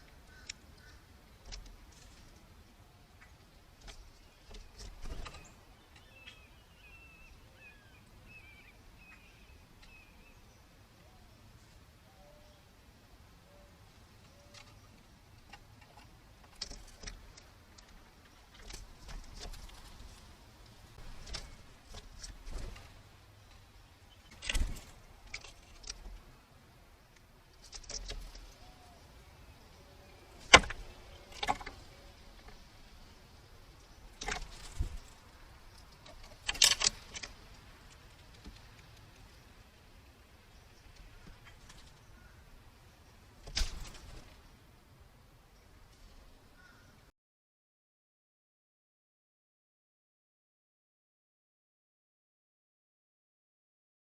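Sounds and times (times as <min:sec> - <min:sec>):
faint high bird chirps: 0:04.3 - 0:12.7.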